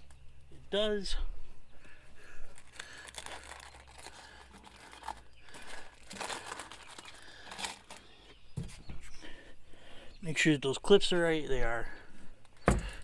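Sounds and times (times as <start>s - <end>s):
packaging rustling and crinkling: 2.5s - 8.8s.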